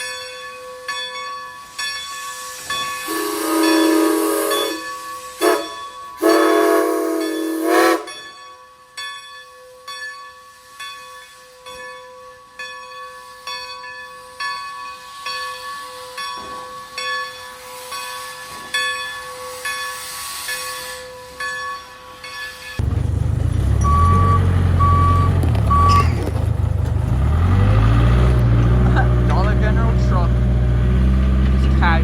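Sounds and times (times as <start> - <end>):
steam hissing: 1.6 - 8.2, 16.8 - 21.4
whistle-like steam tone: 1.7 - 8.4
steam air compressor working: 3.0 - 8.1.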